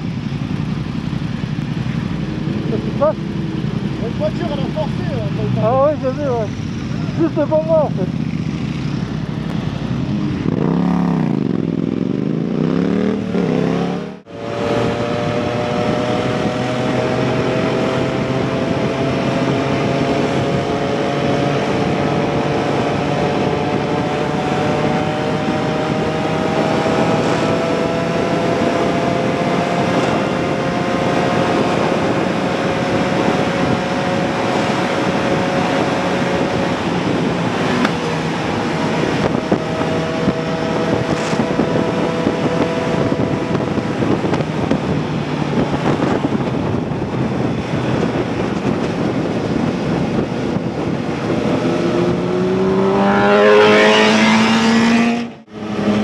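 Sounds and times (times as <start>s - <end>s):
constant rushing noise: 0.0s - 12.5s, 14.1s - 56.0s
motorcycle engine revving: 0.0s - 56.0s.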